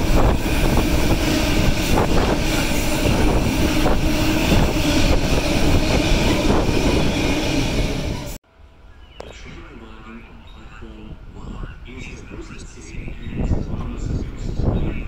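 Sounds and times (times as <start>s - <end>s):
freight train wagons rumbling: 0.0s - 15.0s.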